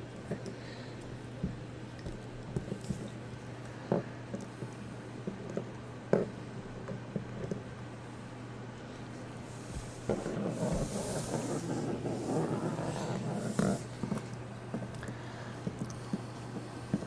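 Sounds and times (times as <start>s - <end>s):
puppy sniffing and snuffling: 9.1s - 17.0s.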